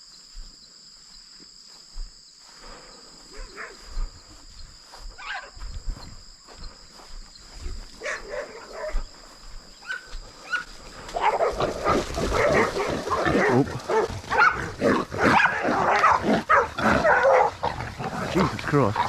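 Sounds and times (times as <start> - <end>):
dogs barking: 3.3 - 3.9, 5.2 - 5.6, 8.0 - 9.2, 9.8 - 19.0.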